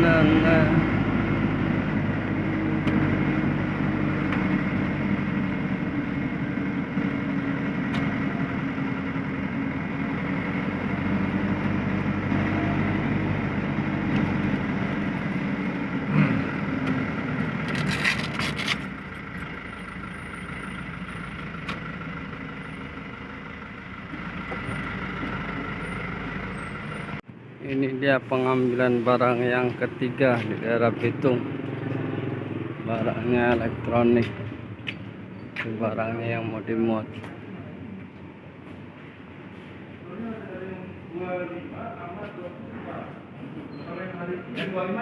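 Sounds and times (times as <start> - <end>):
truck engine running: 0.0 - 27.4.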